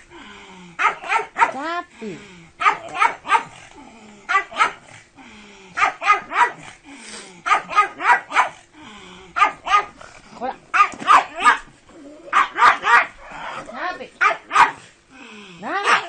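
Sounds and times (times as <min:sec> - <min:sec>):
dog barking: 0:00.8 - 0:01.6, 0:02.6 - 0:03.6, 0:04.3 - 0:04.9, 0:05.8 - 0:06.7, 0:07.4 - 0:08.6, 0:09.4 - 0:10.0, 0:10.7 - 0:11.7, 0:12.3 - 0:13.3, 0:14.2 - 0:14.9, 0:15.7 - 0:16.0.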